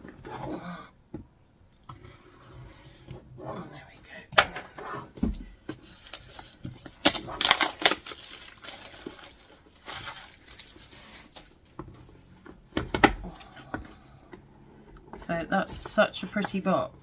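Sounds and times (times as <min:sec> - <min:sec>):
packaging rustling and crinkling: 0:05.3 - 0:11.8.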